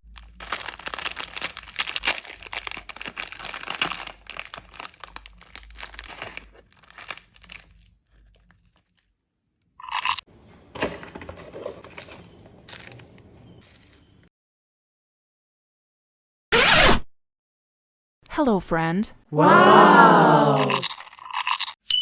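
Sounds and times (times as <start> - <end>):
wrappers crinkling and crunching: 0.0 - 9.1, 9.8 - 10.2, 11.4 - 14.0, 20.6 - 21.8.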